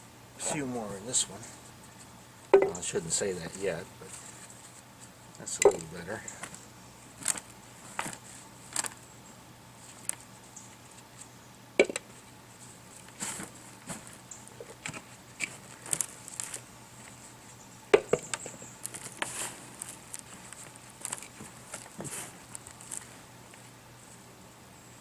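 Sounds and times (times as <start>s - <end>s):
hands sifting through soil: 2.8s - 9.0s, 12.0s - 24.3s
potatoes knocking: 5.5s - 6.0s.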